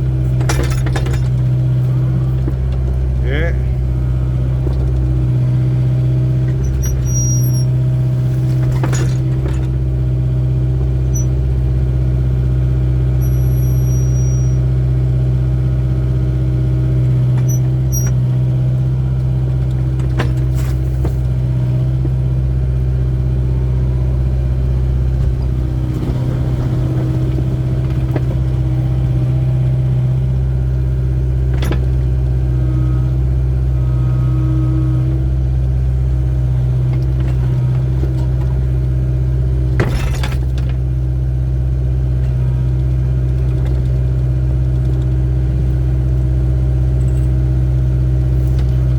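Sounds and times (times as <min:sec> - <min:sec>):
hydraulic whine: 0:00.0 - 0:10.0, 0:13.1 - 0:14.8, 0:17.0 - 0:35.8
excavator diesel engine running: 0:00.0 - 0:48.9.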